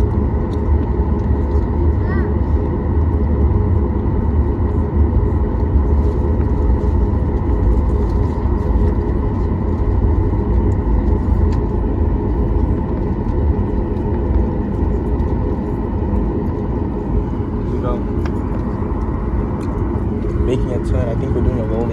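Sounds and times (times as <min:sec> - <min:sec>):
jet cabin engine rumble: 0:00.0 - 0:21.9.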